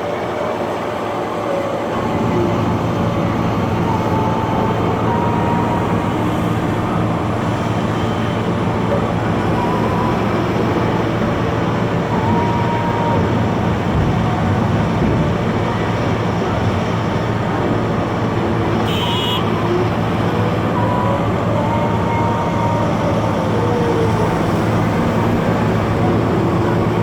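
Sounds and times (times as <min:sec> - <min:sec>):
diesel engine running hard: 0:00.0 - 0:27.0.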